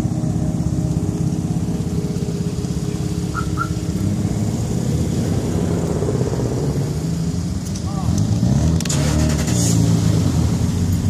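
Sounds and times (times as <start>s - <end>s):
car engine idling: 0.0s - 8.2s
short high chirps: 3.3s - 3.9s.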